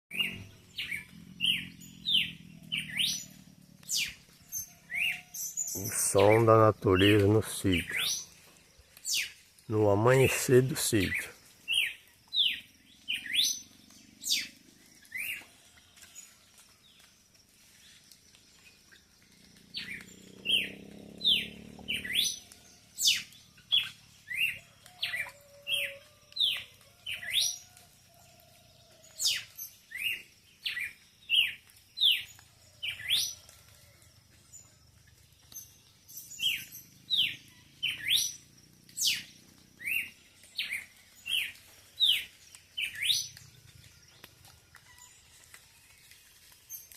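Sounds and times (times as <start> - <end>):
songbird chirps: 0.1 - 46.9
faint bird calls: 19.4 - 27.9.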